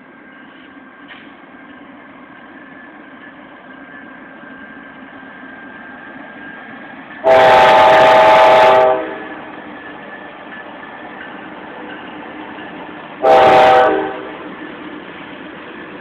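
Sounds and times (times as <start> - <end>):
diesel locomotives rumbling: 0.0 - 16.0
locomotive air horn blast: 7.2 - 9.3, 13.2 - 14.4.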